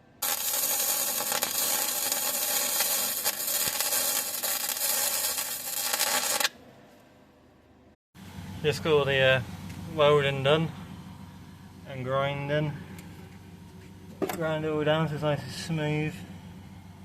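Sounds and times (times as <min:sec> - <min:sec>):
welder crackling hiss: 0:00.0 - 0:06.5.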